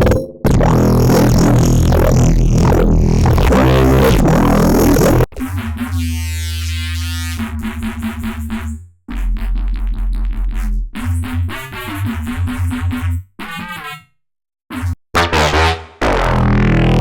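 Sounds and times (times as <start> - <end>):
held low synth bass: 0.0 - 5.3, 15.2 - 17.0
stuttering repeated synth notes: 0.0 - 8.2, 14.8 - 17.0
dense loud synth sound: 0.5 - 5.3, 15.2 - 17.0.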